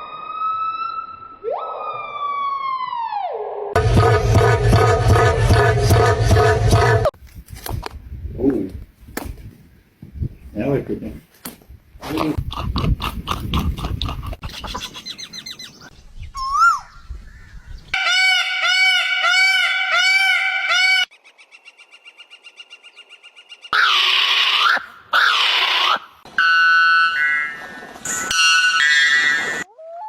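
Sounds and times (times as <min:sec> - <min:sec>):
bird calls: 0:14.4 - 0:20.4
whistled bird notes: 0:14.6 - 0:17.9
harsh bird squawks: 0:23.7 - 0:27.3.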